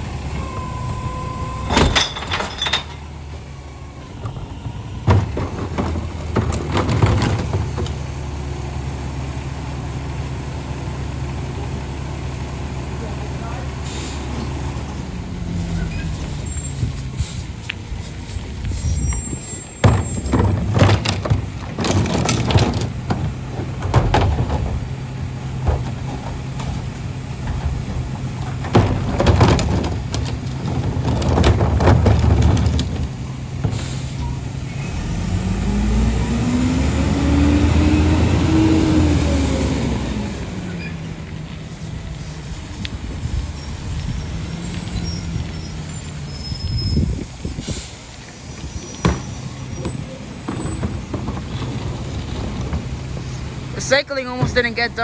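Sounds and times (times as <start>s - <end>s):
diesel engine idling: 0.0s - 2.1s, 2.8s - 46.4s, 47.5s - 55.0s
bangs and knocks of trash: 1.6s - 3.4s, 4.1s - 8.5s, 19.8s - 36.2s, 49.0s - 55.0s
engine revving: 34.7s - 40.7s.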